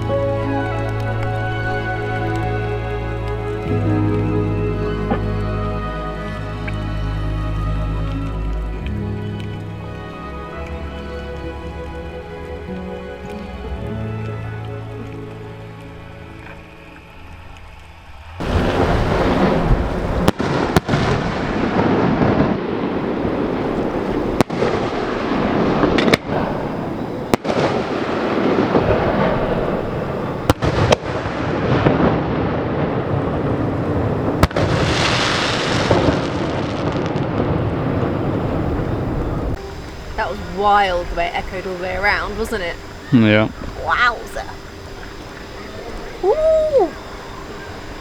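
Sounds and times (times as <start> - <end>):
fireworks booming and crackling: 18.4 - 48.0.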